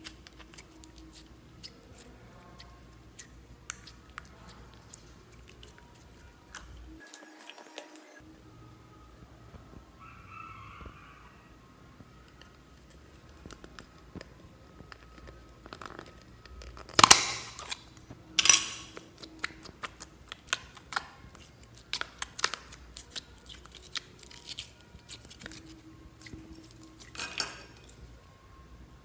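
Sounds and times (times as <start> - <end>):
slime crackling bursts: 0.0 - 8.2, 12.3 - 28.2
slime sticky clicks and pops: 15.7 - 17.8.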